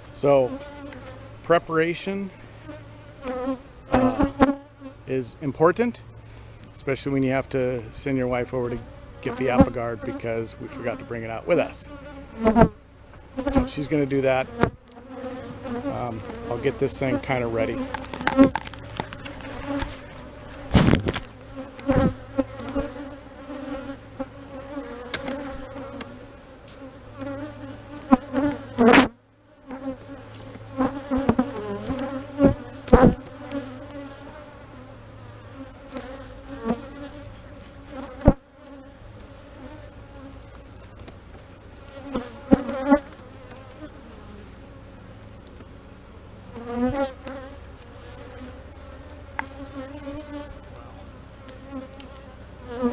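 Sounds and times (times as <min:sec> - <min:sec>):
honey bees buzzing: 0:00.0 - 0:52.9
wooden hive parts knocking: 0:17.7 - 0:22.9.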